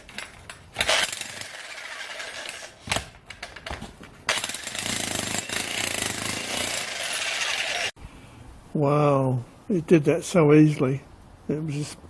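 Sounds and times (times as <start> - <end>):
jackhammer breaking concrete: 4.3 - 7.9.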